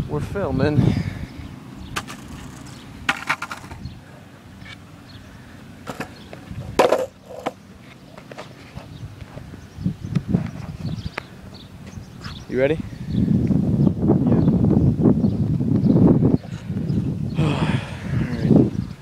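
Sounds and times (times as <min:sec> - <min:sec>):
longboards clattering on pavement: 0:01.9 - 0:03.9, 0:05.8 - 0:09.4.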